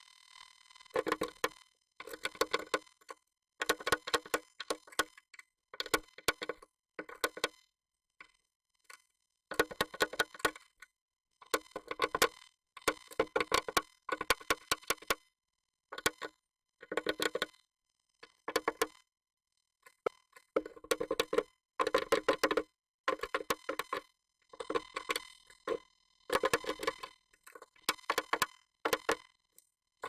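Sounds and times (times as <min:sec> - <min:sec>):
bird tapping and scratching in box: 0:01.0 - 0:02.8, 0:05.8 - 0:07.5, 0:09.5 - 0:10.6, 0:18.5 - 0:18.9, 0:20.5 - 0:24.0, 0:24.6 - 0:27.0.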